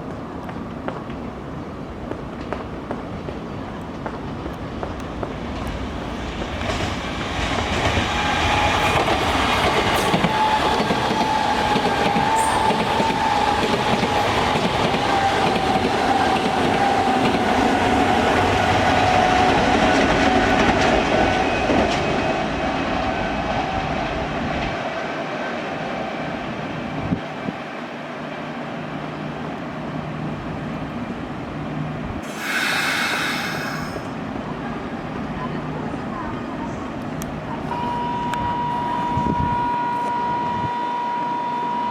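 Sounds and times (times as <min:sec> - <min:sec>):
rail clatter: 0:04.2 - 0:22.1
train motor whine: 0:06.2 - 0:19.4, 0:37.7 - 0:41.9.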